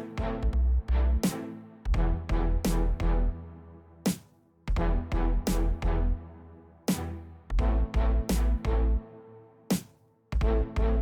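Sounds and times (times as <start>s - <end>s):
electronic music with heavy bass: 0.0s - 3.6s, 4.7s - 9.0s, 10.4s - 11.0s.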